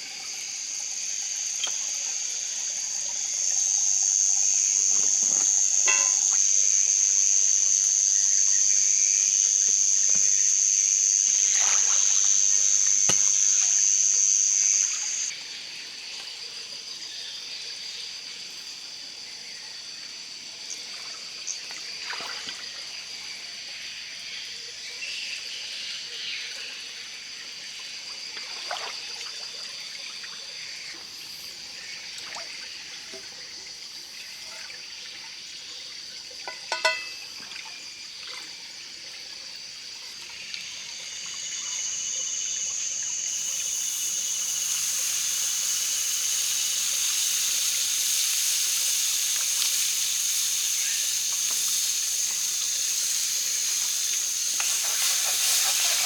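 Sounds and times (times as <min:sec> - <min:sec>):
loud hiss: 0:00.0 - 0:15.3, 0:41.1 - 0:56.0
high-pitched drone: 0:03.2 - 0:15.3
water trickling: 0:34.4 - 0:56.0.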